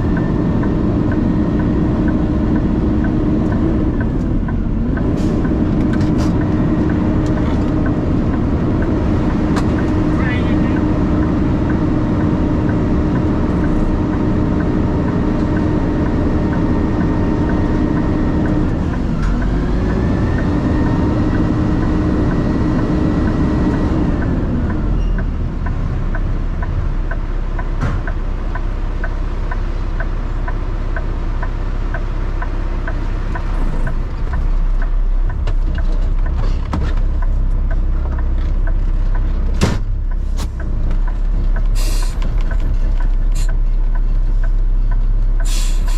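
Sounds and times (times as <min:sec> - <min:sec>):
regular ticking: 0:00.0 - 0:45.9
truck engine revving: 0:00.0 - 0:45.9.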